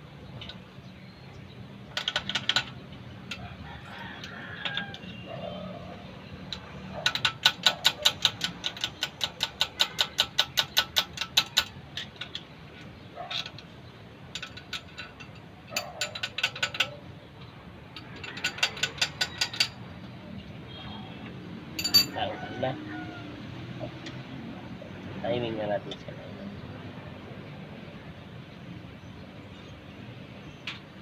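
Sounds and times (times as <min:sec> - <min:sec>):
ratchet wrench clicking: 0:06.5 - 0:12.5, 0:14.3 - 0:17.0, 0:18.0 - 0:19.8.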